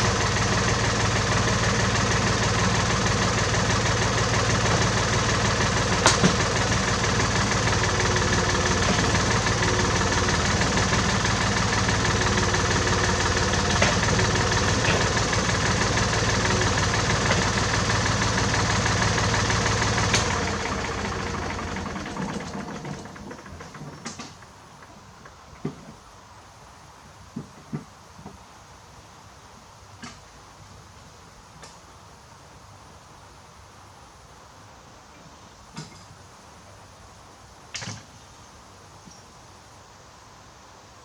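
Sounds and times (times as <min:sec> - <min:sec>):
tractor engine idling: 0:00.0 - 0:25.2.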